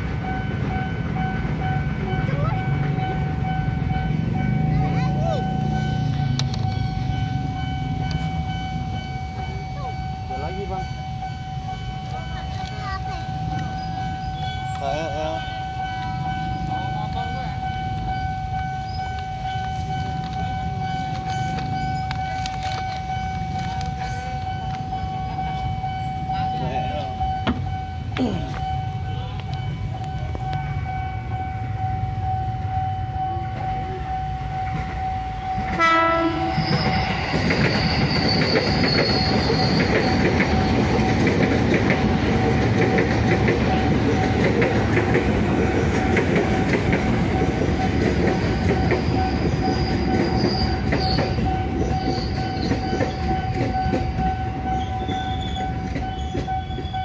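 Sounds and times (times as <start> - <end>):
level crossing warning tone: 0.0 - 57.0
train wheels rumbling on rails: 0.0 - 57.0
train horn blast: 35.6 - 36.8.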